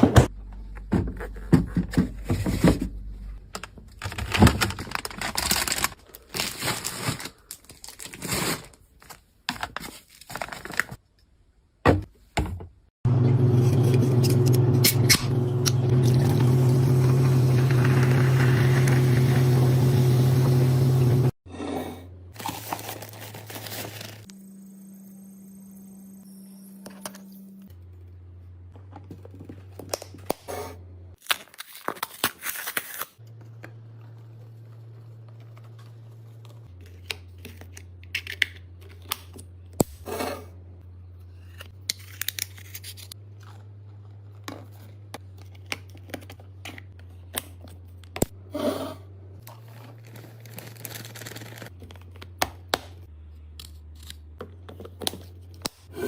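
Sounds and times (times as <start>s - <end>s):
packaging being handled: 3.9s - 11.0s, 22.4s - 24.3s, 49.5s - 52.4s
loud low hum: 13.1s - 21.3s.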